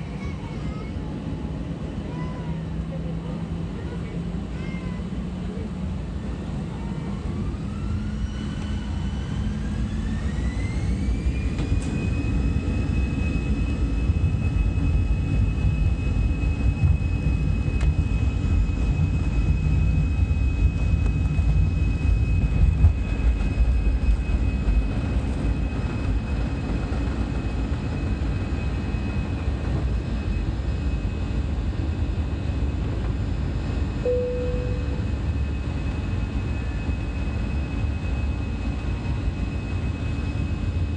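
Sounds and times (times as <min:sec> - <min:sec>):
jet engines whining: 0:00.0 - 0:40.9
heavy rumble: 0:13.7 - 0:40.9
brief low tone: 0:34.0 - 0:35.4.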